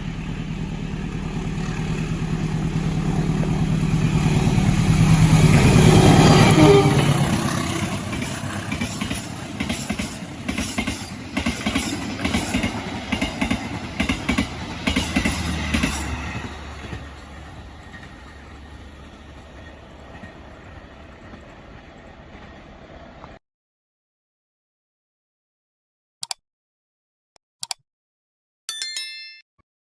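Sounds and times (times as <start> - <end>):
low hum: 0.0 - 7.1
locomotive engine: 0.0 - 23.4
train wheels clacking on rails: 0.0 - 23.4.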